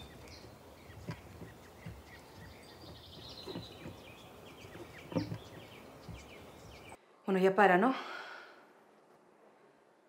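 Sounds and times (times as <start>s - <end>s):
bird trill: 0.0s - 7.0s
birds chirping: 0.0s - 7.0s
soft low thumps: 0.0s - 7.0s
faint outdoor background sound: 0.0s - 10.0s.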